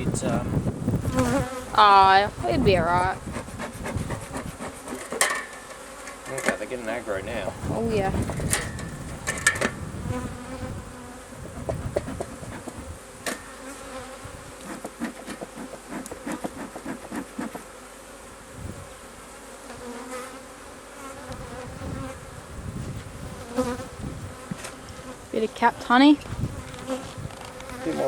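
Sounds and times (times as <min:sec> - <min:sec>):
bees buzzing: 0:00.0 - 0:28.0
sharp clicks and knocks: 0:08.2 - 0:09.8.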